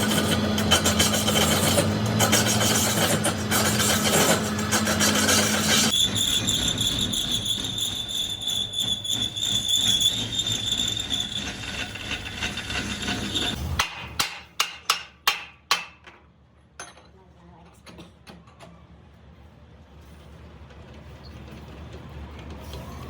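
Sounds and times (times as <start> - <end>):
power tool whining on steel: 0.0 - 13.6.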